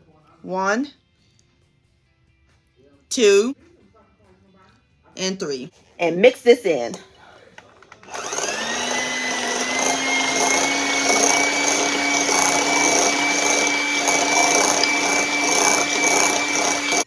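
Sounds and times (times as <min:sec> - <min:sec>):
electric hand mixer whine: 0:08.0 - 0:17.0.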